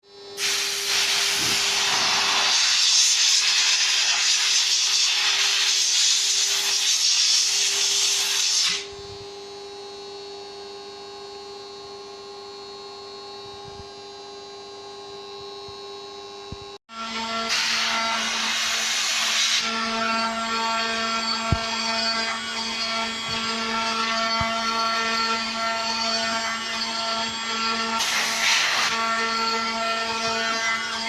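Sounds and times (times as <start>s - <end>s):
router bit cutting wood: 0.7s - 3.0s, 16.9s - 31.0s
spindle whine: 8.6s - 31.0s.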